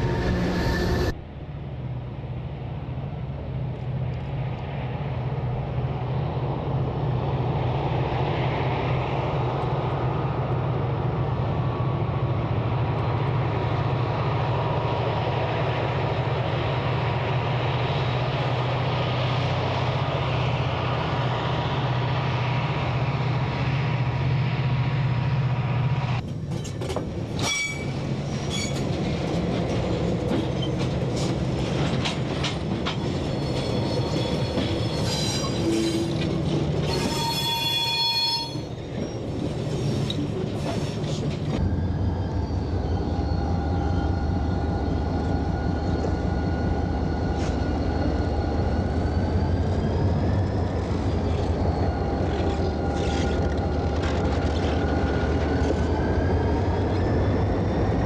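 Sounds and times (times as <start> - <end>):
diesel locomotive engines droning: 0.0 - 58.0
high wheel squeal: 27.4 - 28.9, 33.1 - 53.7.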